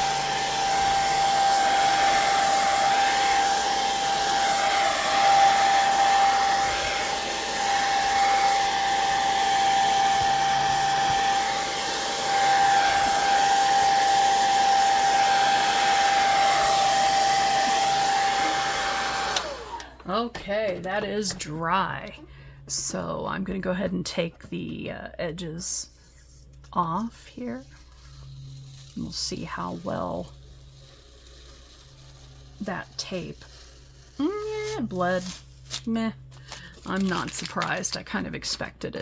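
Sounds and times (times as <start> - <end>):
hot-air dryer blowing: 0.0 - 20.2.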